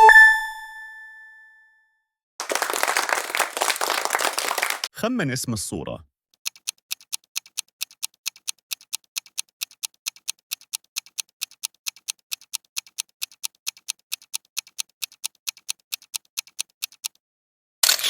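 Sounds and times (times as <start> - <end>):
clock ticking: 6.4 - 17.2.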